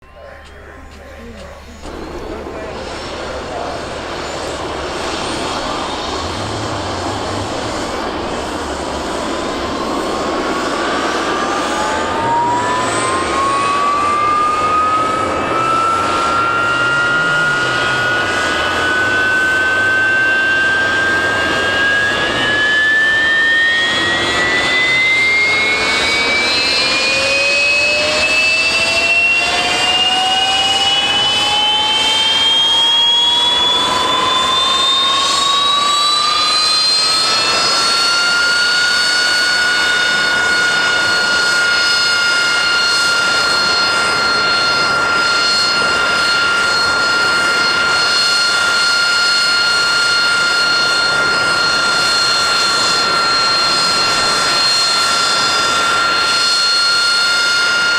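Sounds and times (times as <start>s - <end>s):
lower rising whine: 0.0s - 57.9s
turbofan whine rising in pitch: 0.0s - 57.9s
rushing noise: 1.7s - 41.5s.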